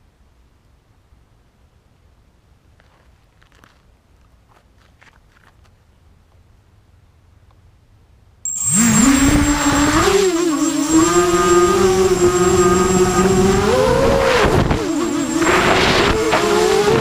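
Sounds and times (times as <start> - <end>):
quadcopter motors buzzing: 8.5 - 17.0
thin high whistle: 8.5 - 17.0.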